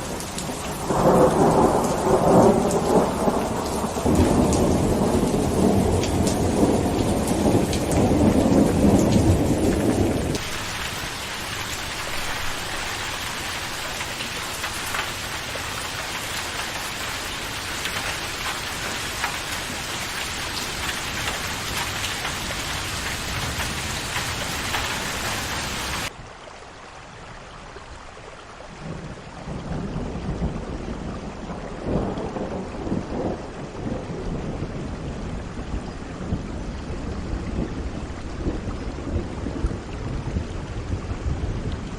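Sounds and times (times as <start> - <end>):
rolling thunder: 0.0 - 13.3, 29.5 - 41.9
rain falling: 0.0 - 41.9.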